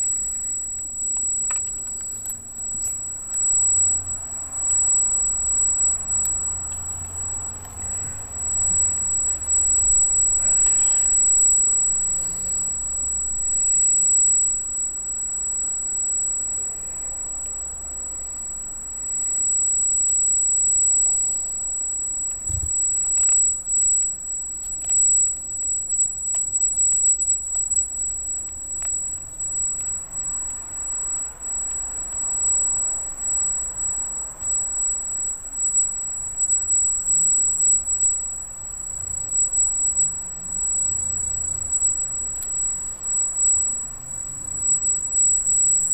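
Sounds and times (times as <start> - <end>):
gimbal motors high-pitched whine: 0.0 - 45.9
thump: 22.5 - 22.8.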